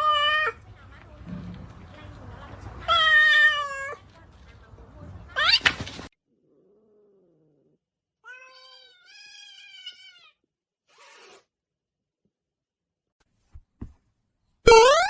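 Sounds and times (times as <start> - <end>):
cat meowing: 2.9 - 4.0, 8.2 - 10.4.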